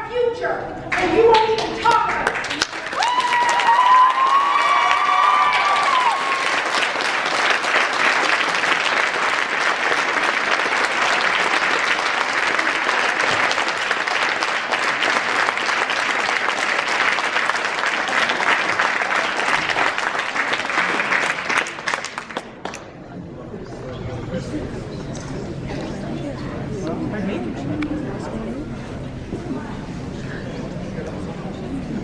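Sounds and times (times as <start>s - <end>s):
crowd applauding: 0.9s - 23.0s.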